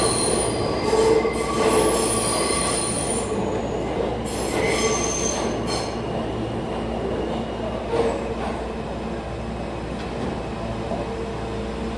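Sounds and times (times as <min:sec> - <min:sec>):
wheels squealing on rails: 0:00.0 - 0:06.2
subway train rumbling: 0:00.0 - 0:11.9.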